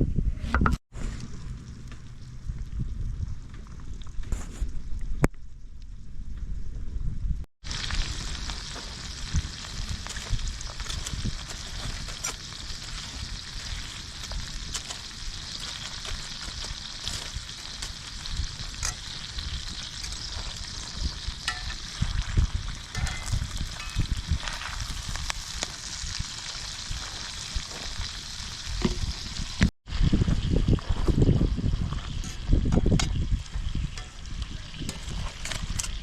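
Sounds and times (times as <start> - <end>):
food sizzling in a pan: 7.6 - 36.0.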